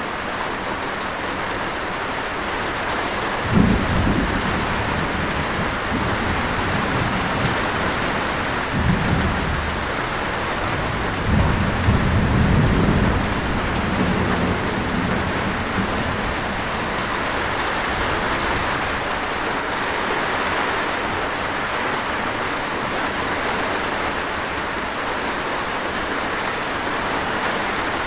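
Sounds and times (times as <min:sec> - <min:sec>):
heavy rain: 0:00.0 - 0:28.0
thunder rumbling: 0:03.4 - 0:19.3.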